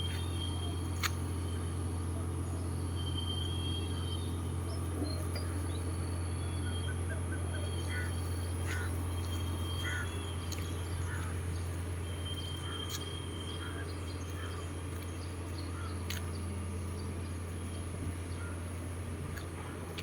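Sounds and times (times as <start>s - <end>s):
low hum with high whine: 0.0s - 20.0s
faint bird-like calls: 6.4s - 14.8s.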